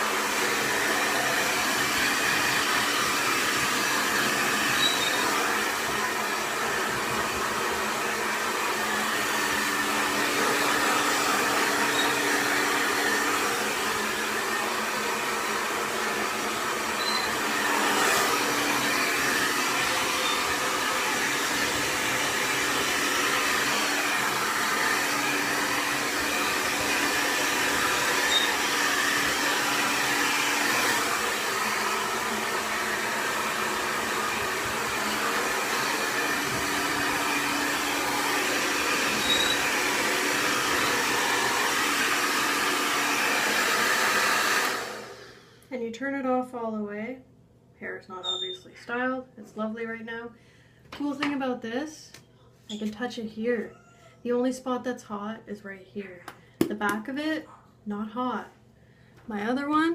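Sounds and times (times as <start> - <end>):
hair dryer blowing: 0.0 - 45.6.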